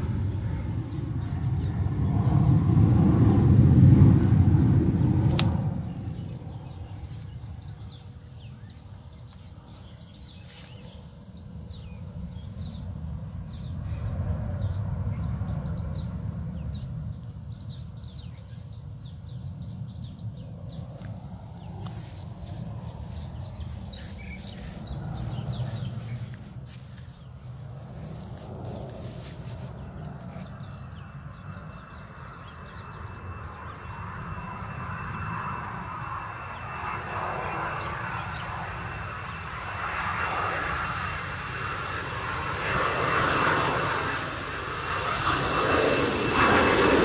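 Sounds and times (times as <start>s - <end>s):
birds chirping: 0.0s - 4.4s, 5.4s - 47.0s
low rumble: 0.0s - 7.9s, 20.2s - 36.8s.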